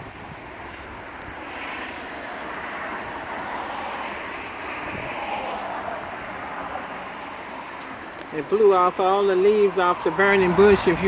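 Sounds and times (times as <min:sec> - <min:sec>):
wind rushing through trees: 0:00.0 - 0:11.0.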